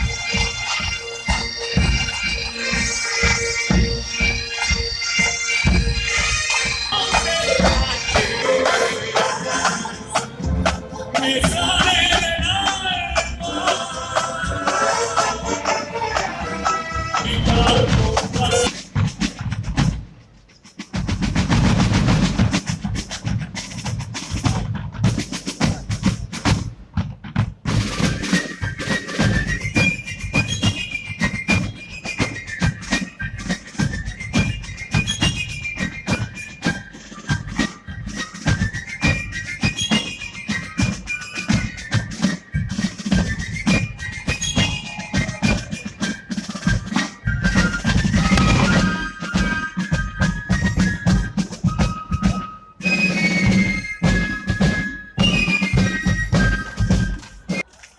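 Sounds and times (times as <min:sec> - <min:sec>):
high piped melody: 0:00.0 - 0:18.7, 0:28.2 - 0:57.6
high-pitched melody: 0:00.0 - 0:18.7
military band drumming: 0:00.0 - 0:57.8
bass drum: 0:17.2 - 0:20.1.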